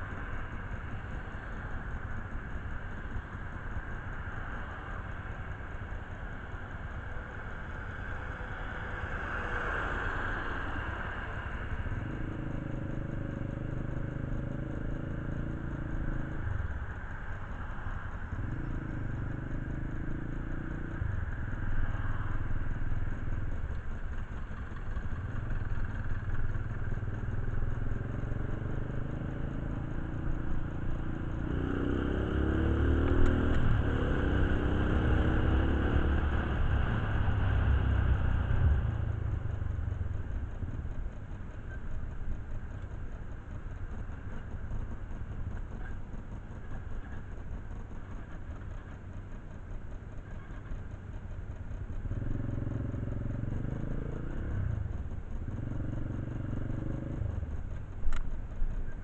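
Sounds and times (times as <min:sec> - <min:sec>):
motorcycle engine revving: 0:11.9 - 0:16.5, 0:18.3 - 0:21.2, 0:23.9 - 0:41.9, 0:51.2 - 0:58.3.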